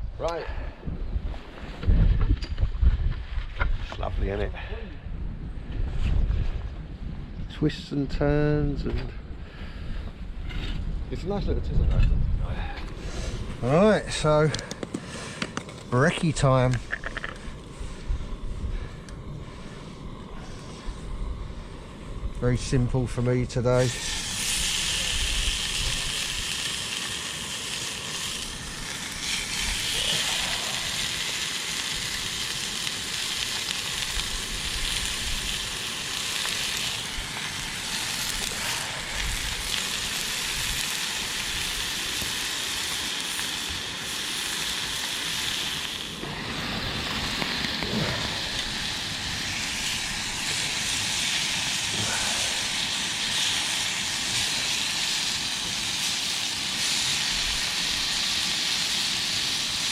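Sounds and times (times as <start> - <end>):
food sizzling in a pan: 22.6 - 59.9.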